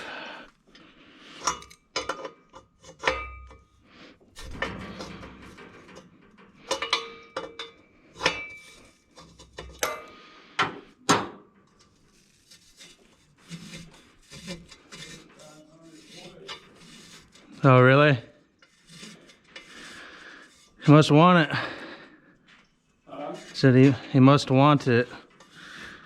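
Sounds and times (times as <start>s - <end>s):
metal tools clinking and knocking: 1.4s - 3.8s, 4.4s - 10.2s.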